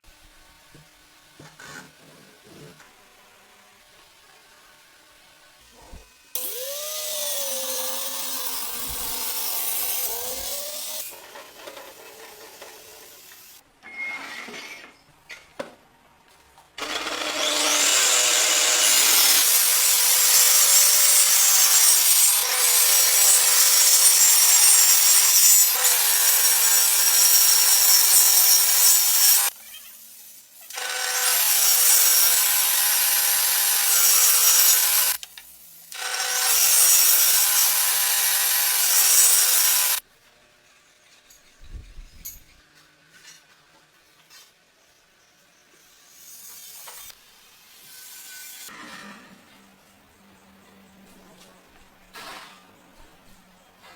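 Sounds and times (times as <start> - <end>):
angle grinder cutting wood: 5.6 - 13.6, 16.8 - 29.6, 30.7 - 35.3, 35.9 - 40.0.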